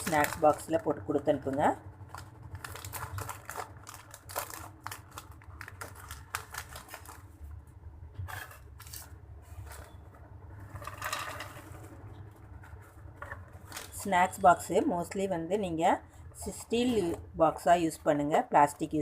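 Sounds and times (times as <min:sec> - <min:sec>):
popcorn clicking and rustling: 0:00.0 - 0:14.0.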